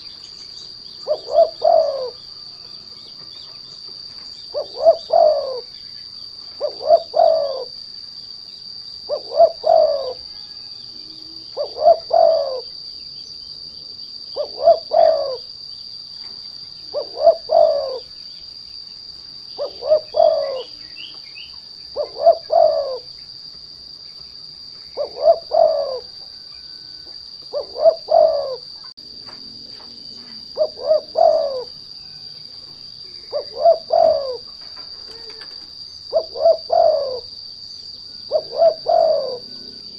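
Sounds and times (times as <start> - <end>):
dove cooing: 0.9 - 3.6, 4.4 - 5.8, 6.4 - 7.8, 9.0 - 12.8, 14.3 - 15.5, 16.9 - 18.2, 19.6 - 21.2, 21.9 - 23.2, 24.9 - 28.9, 30.2 - 32.2, 33.0 - 37.4, 38.1 - 39.9.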